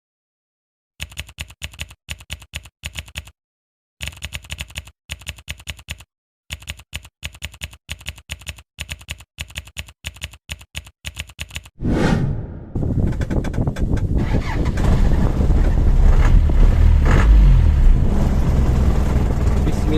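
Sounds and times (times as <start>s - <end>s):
rapid typing clicks: 1.0s - 3.4s, 4.0s - 11.7s.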